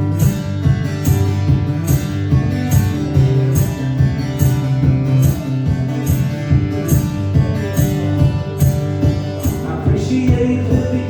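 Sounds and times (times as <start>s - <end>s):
guitar strummed: 0.0s - 11.0s
person singing: 9.6s - 11.0s.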